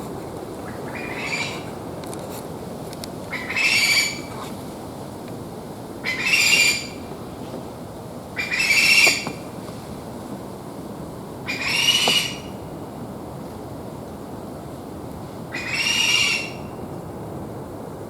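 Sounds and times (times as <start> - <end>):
rail bird rasping squawks: 0.6 - 1.8, 3.3 - 4.6, 6.0 - 7.1, 8.4 - 9.4, 11.5 - 12.6, 15.5 - 16.7.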